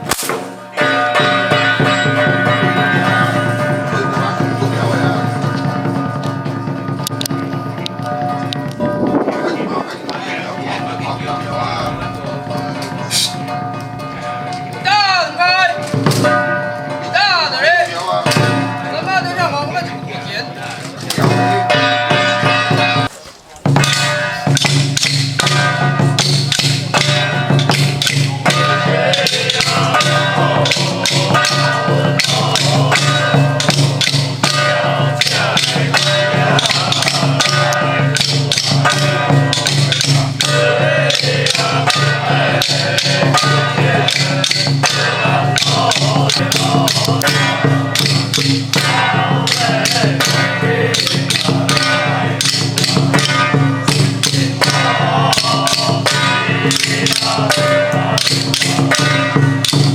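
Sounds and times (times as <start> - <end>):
wood block and drum strokes: 0.0 - 59.9
steady low drone: 3.9 - 13.1.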